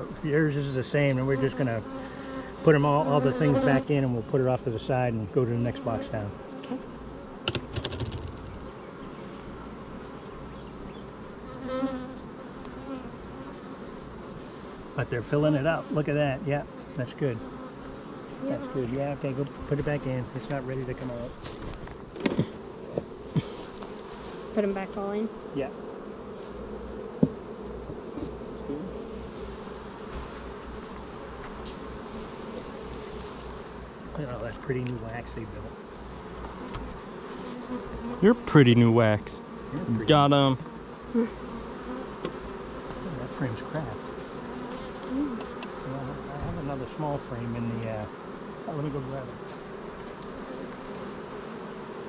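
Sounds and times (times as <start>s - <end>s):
honeybees buzzing: 0.0s - 52.0s
sharp clicks and knocks: 7.4s - 8.5s.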